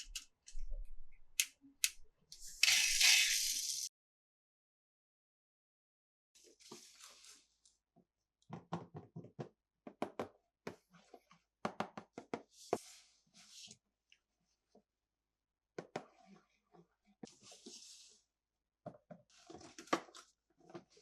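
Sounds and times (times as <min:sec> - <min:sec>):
plastic toy pieces clicking: 0:01.4 - 0:03.8.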